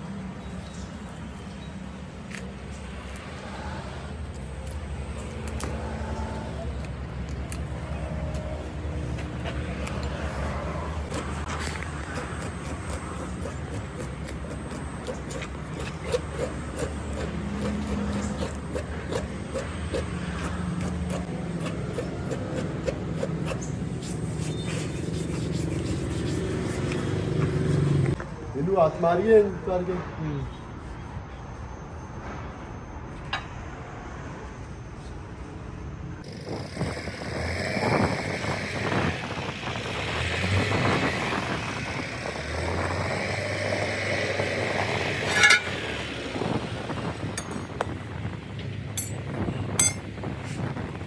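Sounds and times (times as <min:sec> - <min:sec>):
mechanical hum: 0:00.0 - 0:51.0.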